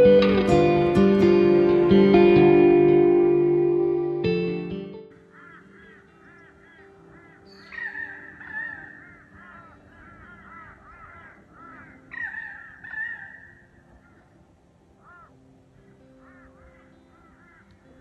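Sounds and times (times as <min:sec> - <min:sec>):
flock of birds chirping: 0:05.1 - 0:14.4, 0:15.0 - 0:18.0
loud long bird calls: 0:05.1 - 0:14.4, 0:15.0 - 0:18.0.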